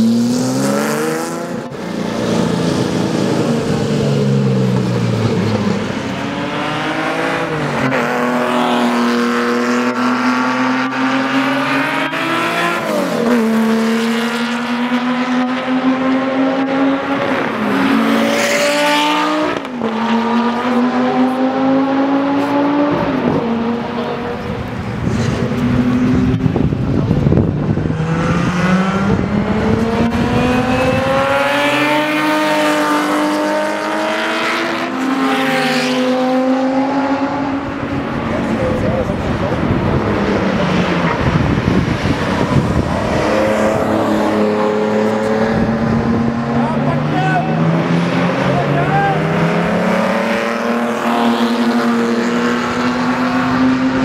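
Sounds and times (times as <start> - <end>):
car engine accelerating hard: 0.0 - 54.0.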